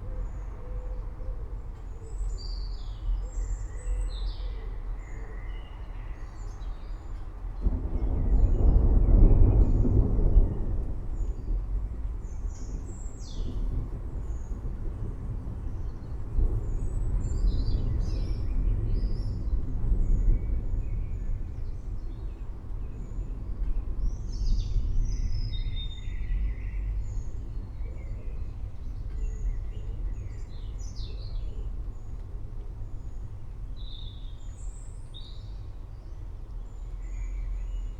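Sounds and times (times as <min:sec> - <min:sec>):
distant thunder rumbling: 0:07.6 - 0:34.4.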